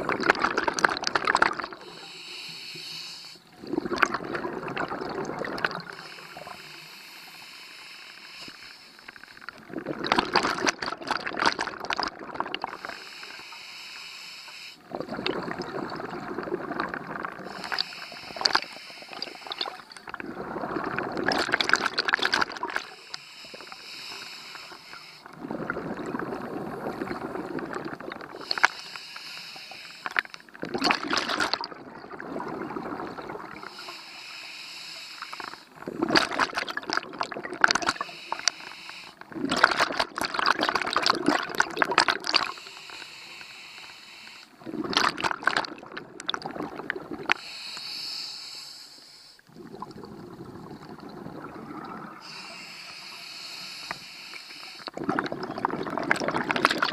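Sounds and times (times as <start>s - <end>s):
hissing regulator inhale: 1.8s - 3.6s, 5.8s - 9.4s, 12.7s - 14.9s, 17.4s - 19.9s, 22.9s - 25.4s, 28.3s - 30.5s, 33.6s - 35.9s, 37.9s - 39.2s, 42.4s - 44.6s, 47.3s - 49.5s, 52.1s - 55.0s
bubbling exhaust: 54.8s - 56.9s.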